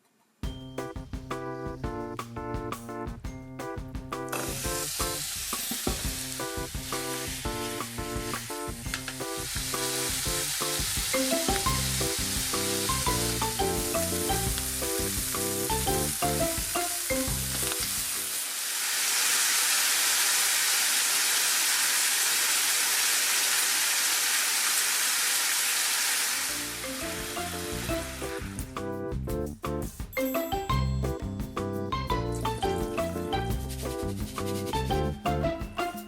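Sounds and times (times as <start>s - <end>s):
background music with melody: 0.4s - 18.2s, 26.5s - 36.0s
food sizzling in frying pan: 4.3s - 28.6s.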